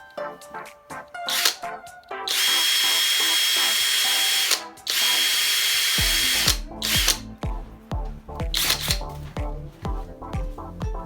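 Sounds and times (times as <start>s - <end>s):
background music with bass: 0.0s - 3.2s, 3.8s - 11.0s
drill whining: 1.3s - 1.6s, 2.3s - 7.2s.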